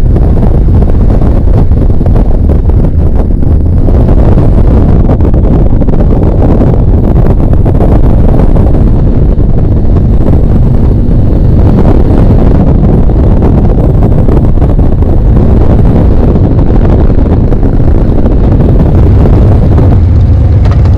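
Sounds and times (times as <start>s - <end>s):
motorcycle engine running: 0.0s - 20.9s
wind buffeting microphone: 0.0s - 20.9s.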